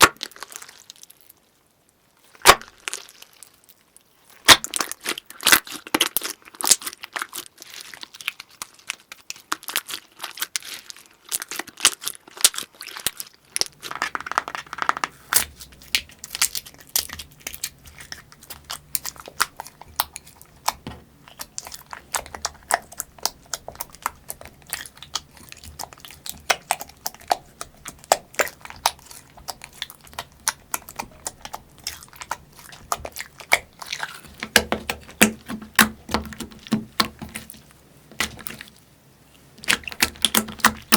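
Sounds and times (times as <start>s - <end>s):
slime crackling and popping: 2.3s - 3.6s, 4.4s - 38.8s, 39.6s - 40.9s
low steady hum: 15.2s - 40.9s.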